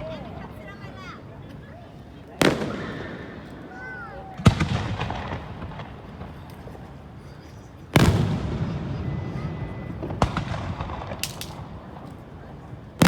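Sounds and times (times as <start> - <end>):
faint firework pops: 2.4 - 3.5, 10.0 - 12.2
fireworks booming: 2.4 - 3.6, 4.4 - 6.5, 8.0 - 12.1.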